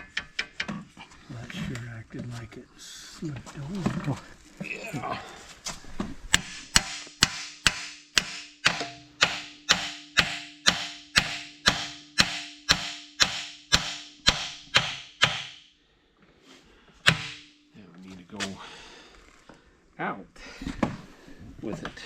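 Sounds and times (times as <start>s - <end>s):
hammer striking metal: 6.3s - 15.7s, 17.0s - 17.6s.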